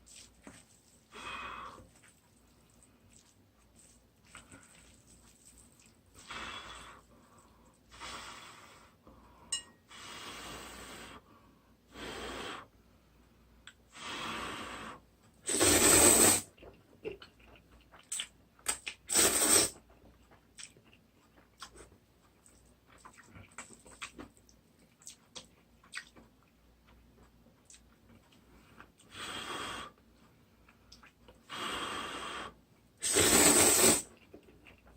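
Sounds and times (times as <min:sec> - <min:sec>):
noodles being slurped: 0:01.9 - 0:06.9, 0:33.0 - 0:34.8
wet chewing smacks: 0:20.0 - 0:28.9.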